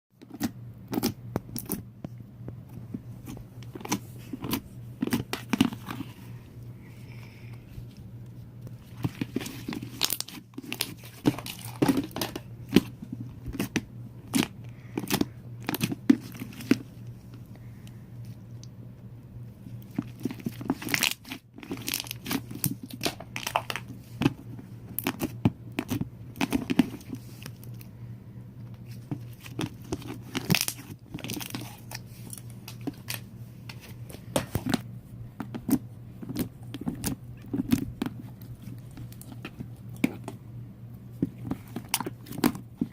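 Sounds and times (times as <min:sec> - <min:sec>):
low hum: 0:00.5 - 0:42.9.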